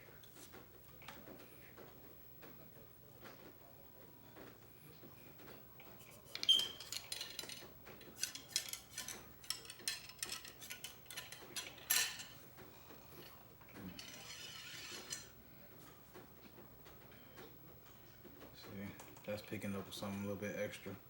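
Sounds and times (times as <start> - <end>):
cleaning rod clinking in metal barrel: 8.2 - 12.4.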